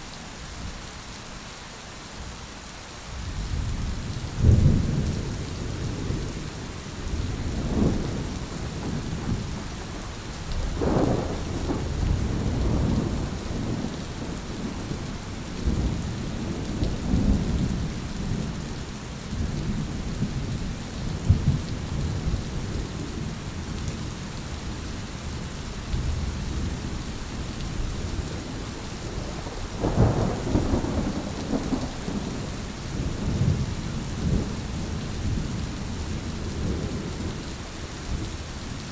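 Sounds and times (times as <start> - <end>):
steady rain: 0.0 - 38.9
rolling thunder: 4.4 - 10.0, 10.6 - 18.6, 27.7 - 35.7.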